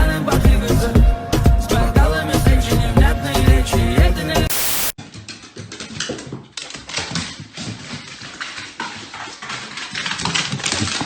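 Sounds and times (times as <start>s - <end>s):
burst of noise: 4.5s - 5.0s.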